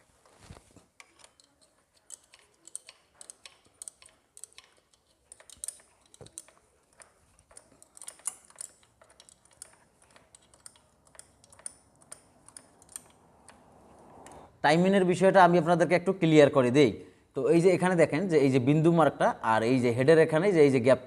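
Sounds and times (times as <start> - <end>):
ratchet wrench clicking: 0.9 - 14.5.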